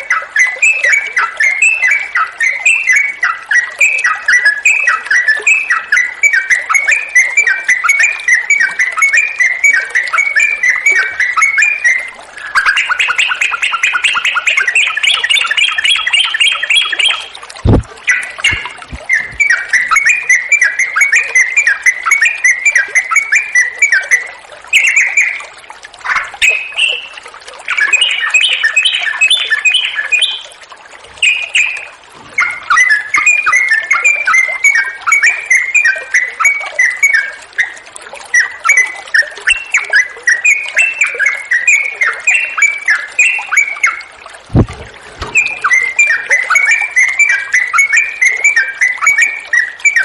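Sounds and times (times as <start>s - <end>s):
bird chattering song: 0.0s - 25.4s, 27.7s - 30.5s, 31.2s - 37.7s, 39.5s - 50.0s
faint running water: 0.0s - 50.0s
low thump: 17.6s - 17.9s, 44.5s - 45.5s.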